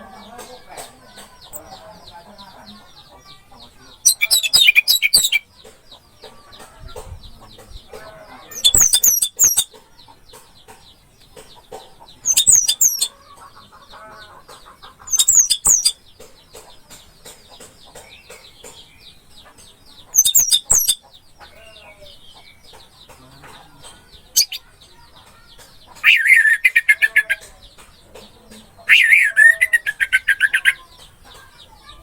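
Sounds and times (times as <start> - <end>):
thrush singing: 0.0 - 9.7, 23.1 - 32.0
soft high chirping: 4.0 - 5.4, 8.5 - 9.8, 12.2 - 13.2, 15.0 - 16.0, 20.1 - 22.3, 24.2 - 25.0.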